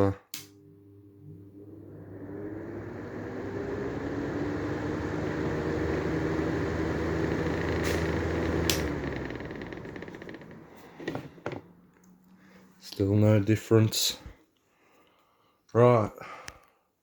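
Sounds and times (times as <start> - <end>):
fan switch clicks: 0.3 - 0.6, 7.9 - 9.0
exhaust fan running: 0.4 - 12.1.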